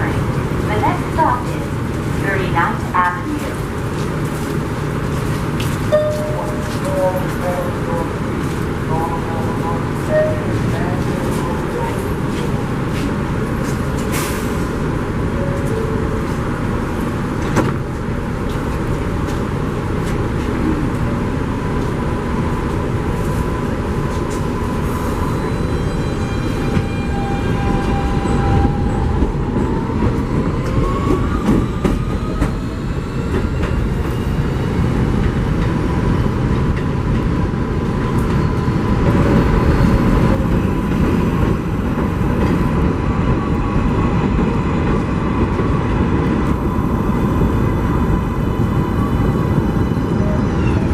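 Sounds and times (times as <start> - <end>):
subway train rumble: 0.0 - 50.9.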